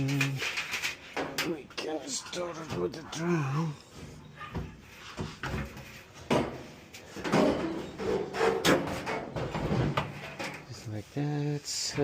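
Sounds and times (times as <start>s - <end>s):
dryer drum clunking and scraping: 3.9s - 10.8s.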